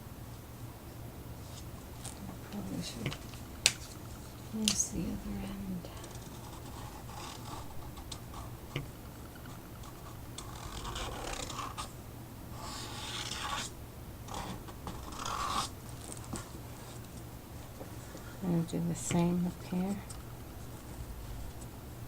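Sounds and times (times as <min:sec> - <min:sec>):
marker scratching on chipboard: 0:05.9 - 0:11.9, 0:12.6 - 0:13.7, 0:14.3 - 0:18.4.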